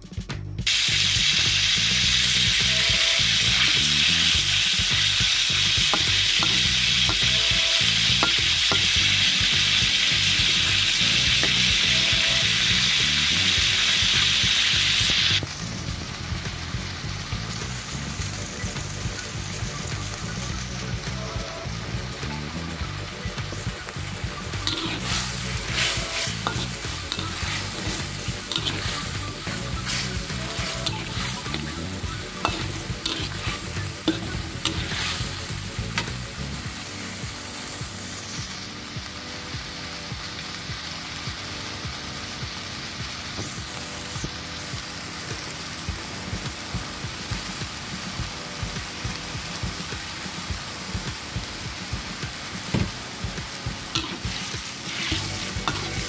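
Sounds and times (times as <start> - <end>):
meat sizzling in hot oil: 0.6 - 56.0
metal spatula scraping a wok: 2.2 - 12.7, 24.4 - 36.6, 53.9 - 56.0.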